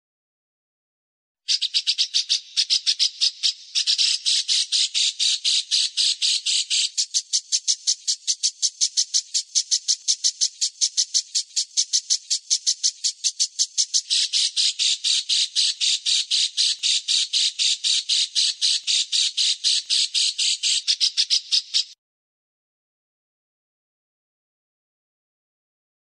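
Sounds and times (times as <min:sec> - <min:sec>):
songbird harsh scratchy calls: 0:01.5 - 0:22.0.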